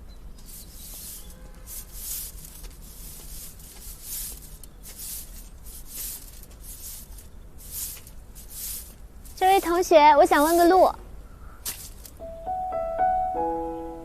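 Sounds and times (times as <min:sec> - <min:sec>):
swishing scraping strokes: 0:00.4 - 0:10.6.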